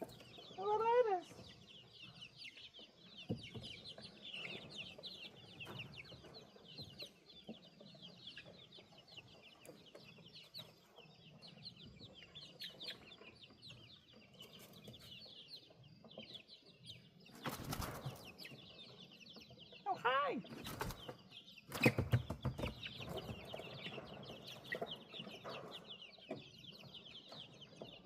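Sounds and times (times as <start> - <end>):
baby chicks peeping: 0.0 - 28.0.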